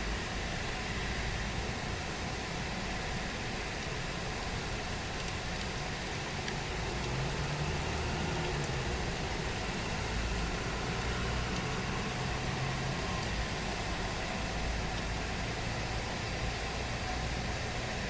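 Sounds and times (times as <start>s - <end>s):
steady rain falling: 0.0s - 18.0s
vehicle engine humming: 4.6s - 17.9s.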